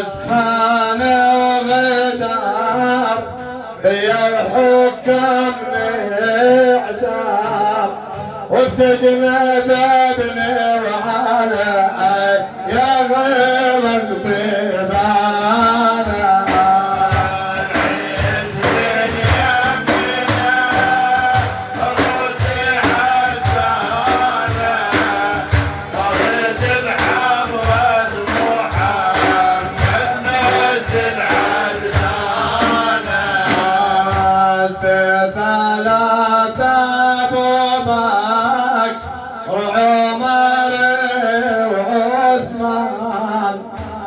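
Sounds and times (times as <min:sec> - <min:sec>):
man singing and chanting: 0:00.0 - 0:44.0
steady drum beat: 0:11.9 - 0:39.9.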